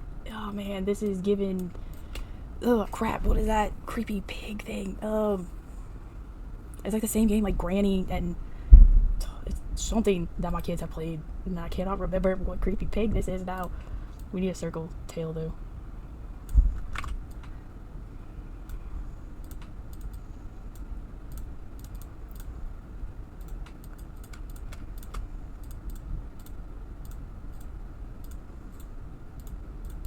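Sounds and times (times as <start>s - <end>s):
low thump: 8.7s - 9.2s
computer keyboard typing: 23.4s - 30.0s.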